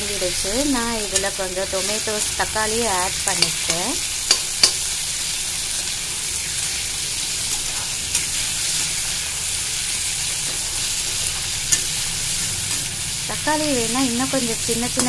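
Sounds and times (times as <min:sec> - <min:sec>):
vegetables sizzling in oil: 0:00.0 - 0:15.0
metal spatula clicking on pan: 0:03.3 - 0:04.8.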